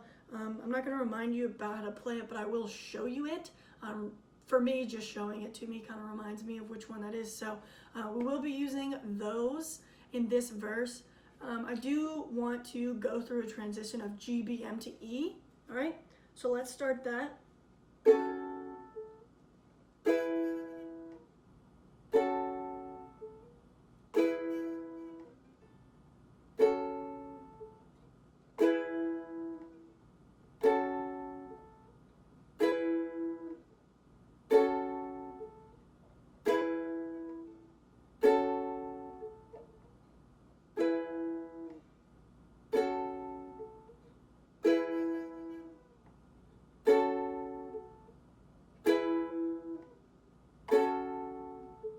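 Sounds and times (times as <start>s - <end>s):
ukulele chords strummed: 18.0s - 19.2s, 20.0s - 21.2s, 22.1s - 23.5s, 24.1s - 25.4s, 26.6s - 27.9s, 28.6s - 29.9s, 30.6s - 32.0s, 32.6s - 33.6s, 34.5s - 35.8s, 36.4s - 37.6s, 38.2s - 39.8s, 40.8s - 41.8s, 42.7s - 44.0s, 44.6s - 45.9s, 46.8s - 48.1s, 48.8s - 50.0s, 50.7s - 51.9s.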